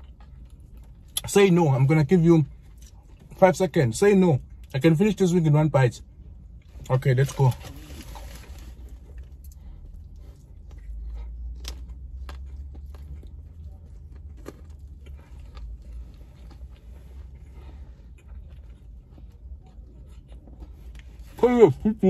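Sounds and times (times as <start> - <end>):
wet chewing with crunches: 0.0 - 1.2, 6.5 - 21.4.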